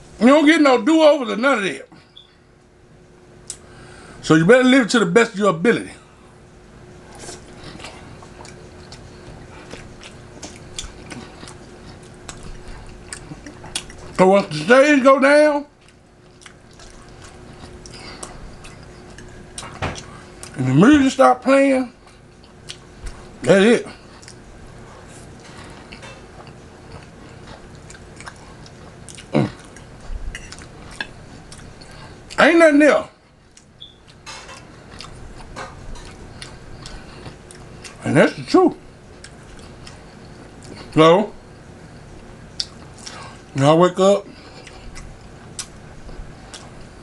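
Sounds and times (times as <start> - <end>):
faint steady hum: 0.0 - 47.0
person chewing with wet clicks: 3.4 - 3.6, 7.1 - 14.2, 15.8 - 20.6, 22.0 - 24.4, 25.2 - 32.4, 33.4 - 38.0, 39.0 - 41.0, 42.0 - 43.6, 44.3 - 47.0.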